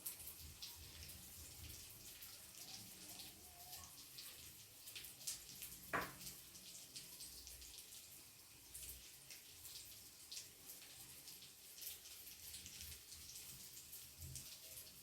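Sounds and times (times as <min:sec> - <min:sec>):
omelette sizzling in a pan: 0:00.0 - 0:15.0
brief knock: 0:06.0 - 0:06.2.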